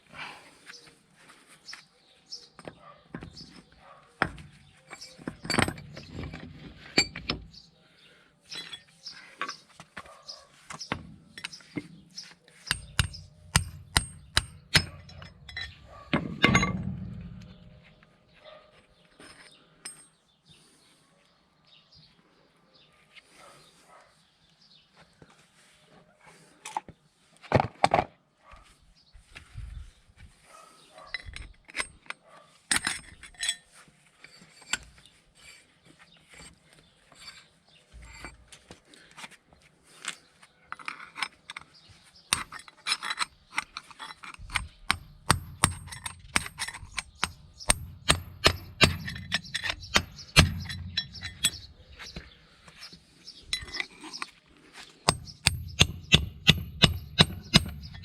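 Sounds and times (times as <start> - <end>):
metal tools clinking: 4.2 - 7.6, 8.5 - 9.7, 12.6 - 17.5, 19.2 - 20.2, 31.1 - 35.6, 36.3 - 38.6, 40.7 - 52.3, 53.4 - 54.4, 55.1 - 58.0
hammer striking metal: 12.7 - 17.5, 44.9 - 51.7, 55.1 - 58.0.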